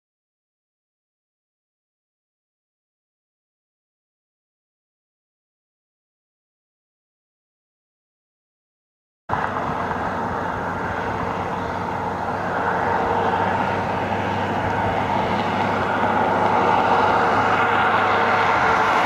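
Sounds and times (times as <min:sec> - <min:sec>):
vehicle road and engine noise: 0:09.3 - 0:19.0.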